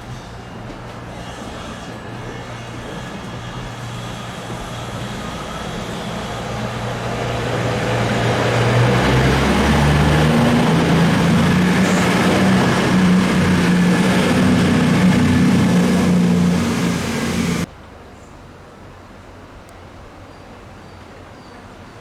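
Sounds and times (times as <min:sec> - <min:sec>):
diesel train engine: 0:00.0 - 0:17.7
steady rushing noise: 0:04.5 - 0:17.7.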